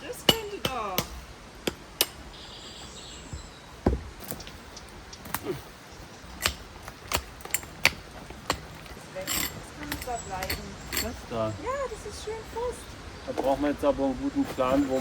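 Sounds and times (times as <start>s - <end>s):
stones clacking together: 6.3s - 11.4s.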